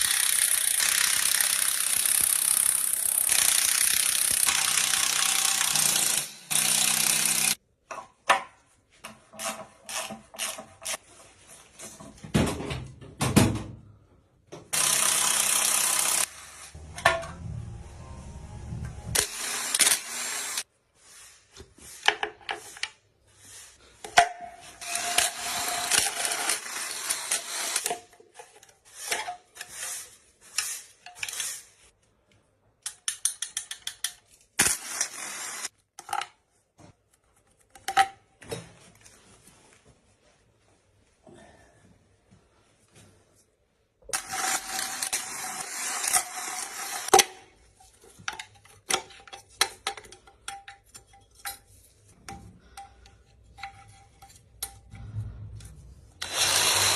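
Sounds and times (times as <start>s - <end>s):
power tool running: 0.0s - 7.6s, 14.8s - 17.0s, 17.6s - 20.6s, 56.2s - 56.9s.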